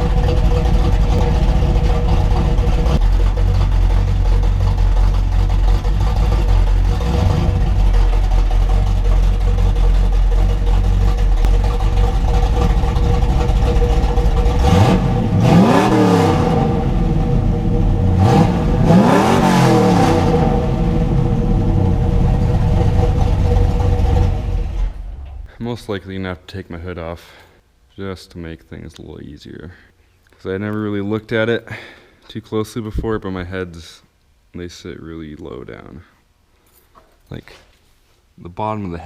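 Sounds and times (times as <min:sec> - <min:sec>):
car engine idling and revving: 0:00.0 - 0:25.5.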